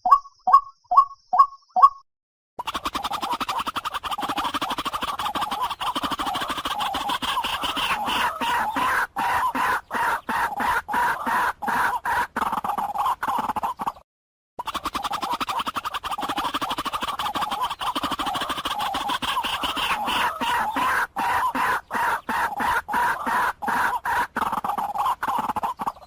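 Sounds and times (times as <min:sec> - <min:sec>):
waterhen croaking calls: 0:02.6 - 0:14.0, 0:14.6 - 0:26.0.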